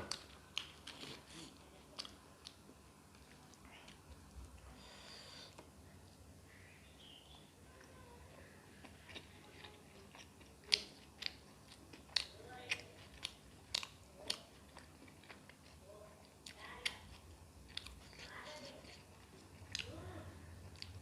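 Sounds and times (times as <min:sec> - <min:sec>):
person chewing crunchy food: 0:00.0 - 0:04.6, 0:08.8 - 0:20.0.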